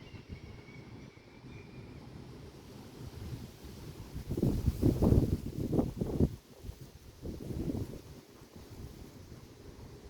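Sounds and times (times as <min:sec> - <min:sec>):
wind buffeting the microphone: 0:02.0 - 0:10.0.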